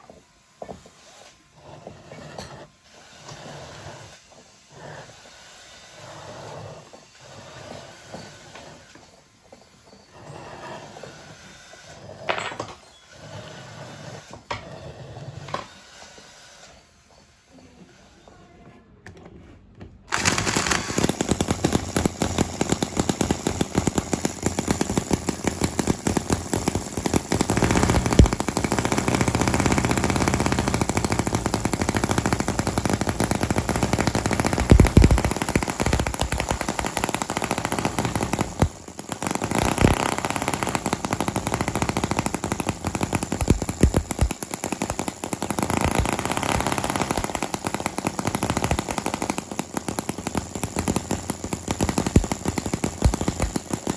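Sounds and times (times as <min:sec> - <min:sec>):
small model engine running fast: 0:20.1 - 0:53.9.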